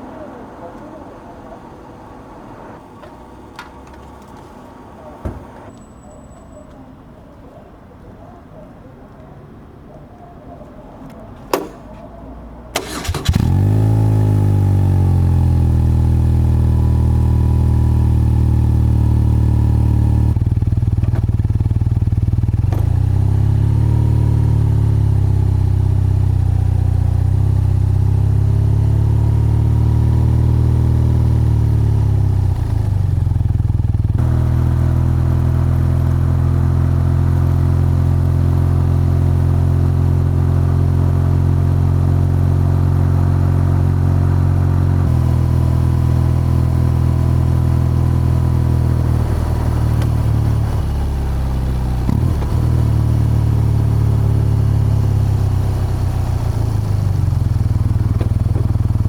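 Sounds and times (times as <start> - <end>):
motorcycle engine and exhaust: 12.8 - 59.0.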